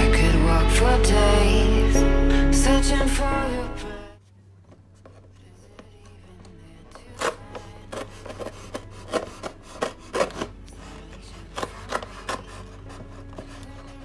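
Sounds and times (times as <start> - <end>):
knife scraping through paper: 7.0 - 14.0.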